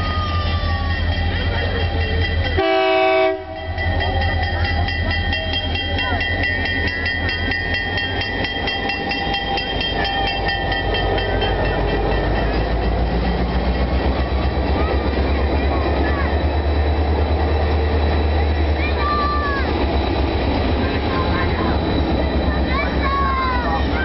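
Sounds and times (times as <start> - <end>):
crossing signal bell ringing: 0.0 - 24.0
diesel locomotive engine rumble: 0.0 - 24.0
train horn chord: 2.5 - 3.9
wheels clacking over rails: 3.6 - 24.0.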